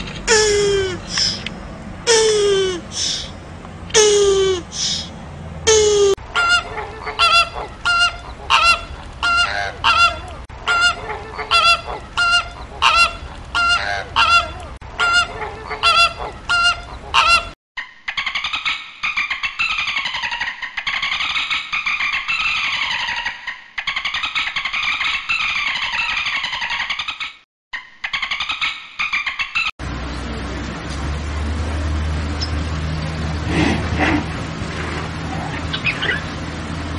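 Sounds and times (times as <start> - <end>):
goose honking: 5.7 - 17.6.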